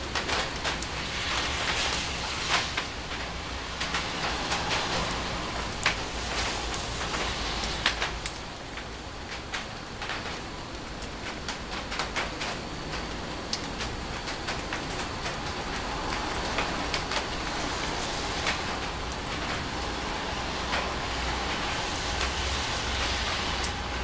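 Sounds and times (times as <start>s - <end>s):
rain hissing: 0.0s - 24.0s
raindrops ticking on hard surface: 0.0s - 24.0s.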